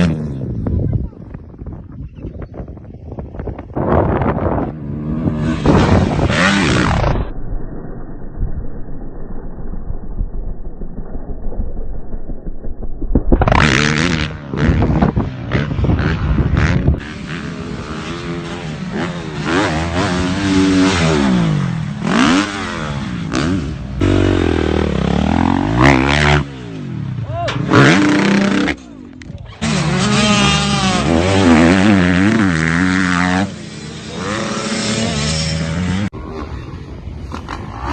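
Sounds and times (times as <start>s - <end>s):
dirt bike engines revving: 3.8s - 7.3s, 13.4s - 37.9s.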